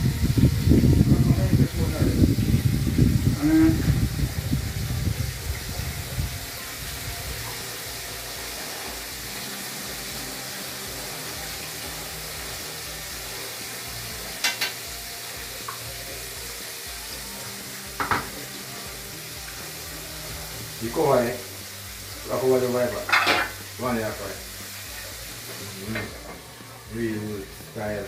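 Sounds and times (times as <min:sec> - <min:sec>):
chicken sizzling in hot oil: 0:00.0 - 0:28.0
metal cookware clanks: 0:14.4 - 0:14.8, 0:23.0 - 0:23.6.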